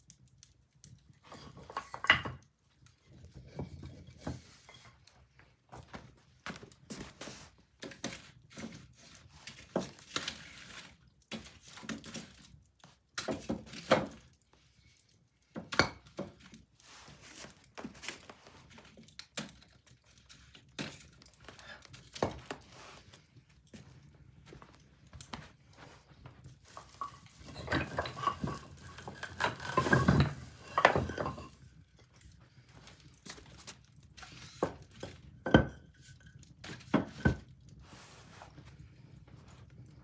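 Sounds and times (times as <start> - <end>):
wood fire crackling and popping: 0.0 - 1.2, 7.8 - 31.6.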